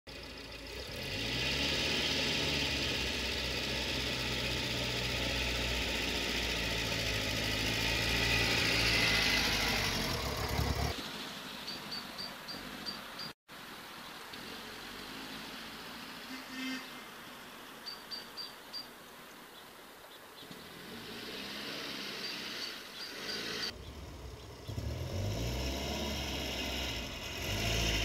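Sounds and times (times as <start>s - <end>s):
car engine running: 0.1s - 11.0s, 23.4s - 28.0s.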